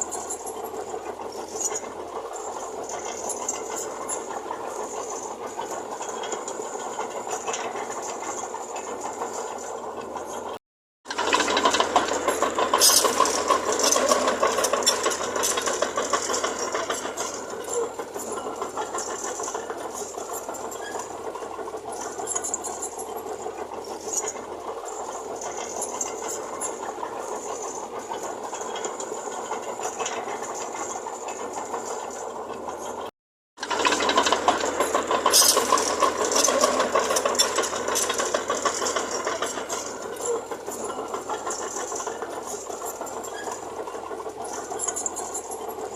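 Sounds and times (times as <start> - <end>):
heavy diesel machinery running: 0.0 - 33.0, 33.6 - 45.9
metallic rattling: 33.6 - 43.7.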